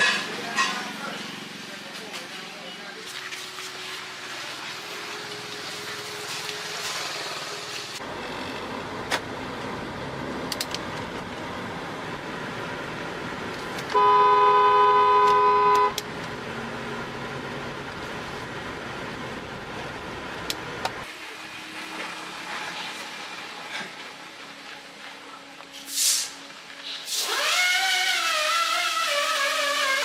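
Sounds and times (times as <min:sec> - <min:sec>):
vehicle horn blast: 0:13.9 - 0:16.0.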